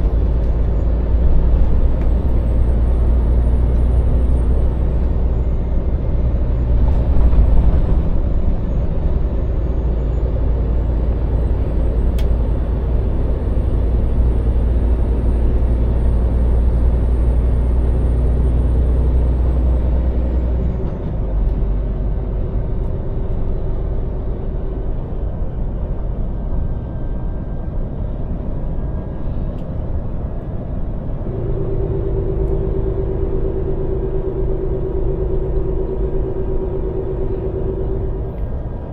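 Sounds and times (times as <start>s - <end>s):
lorry diesel engine running: 0.0s - 38.9s
road noise: 0.0s - 38.9s
faint high whine: 31.1s - 38.8s.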